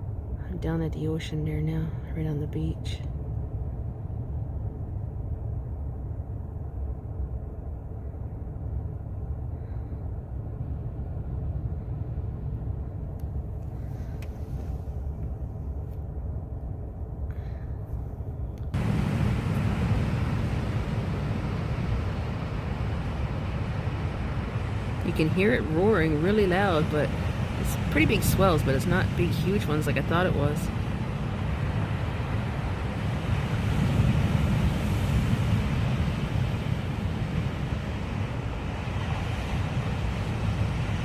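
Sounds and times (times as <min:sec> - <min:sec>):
ocean surf roar: 0:18.7 - 0:41.0.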